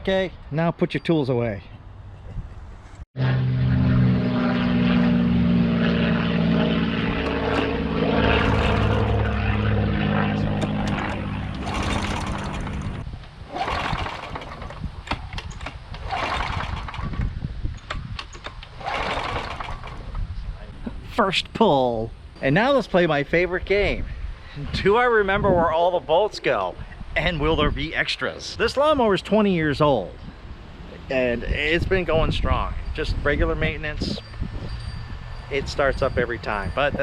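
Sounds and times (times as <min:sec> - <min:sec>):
lawn mower engine running: 0:06.4 - 0:20.2
short irregular noises: 0:18.0 - 0:20.2.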